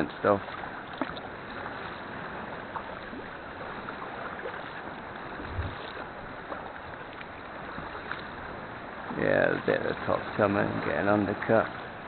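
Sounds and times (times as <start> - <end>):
sea water lapping around kayak: 0.0 - 12.0
low thud: 5.4 - 5.8.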